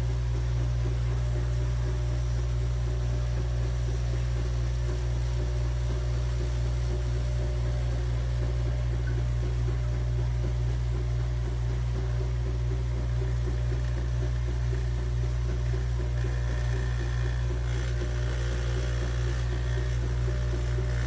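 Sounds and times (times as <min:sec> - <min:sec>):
espresso machine humming: 0:00.0 - 0:21.0.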